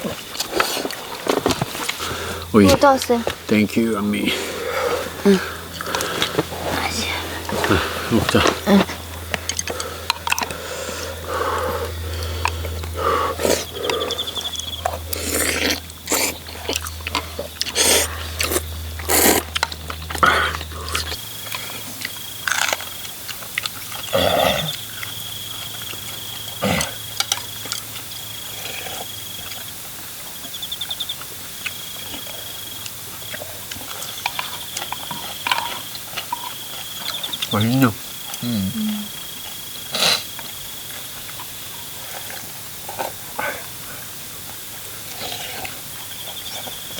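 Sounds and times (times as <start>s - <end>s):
chewing: 0.0s - 3.4s, 4.3s - 46.9s
high insect-like trill: 6.6s - 41.8s
utensils clicking against bowls: 9.2s - 10.6s.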